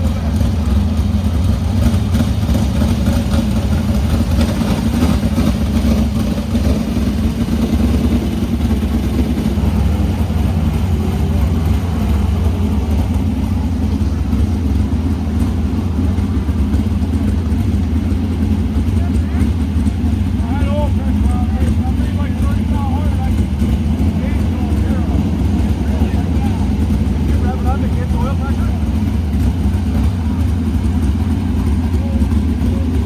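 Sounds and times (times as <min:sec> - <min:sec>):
race car engine running: 0:00.0 - 0:33.0.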